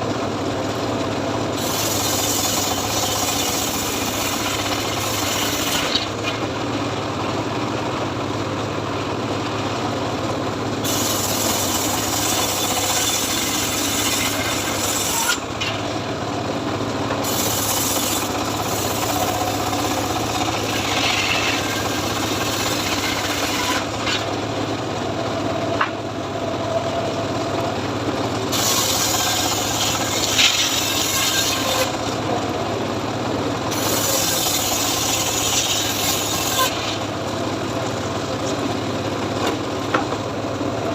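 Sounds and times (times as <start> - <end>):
sawmill engine running: 0.0 - 40.9
saw rasping through wood: 1.6 - 6.2, 10.8 - 15.6, 17.2 - 24.4, 28.5 - 32.3, 33.7 - 37.2.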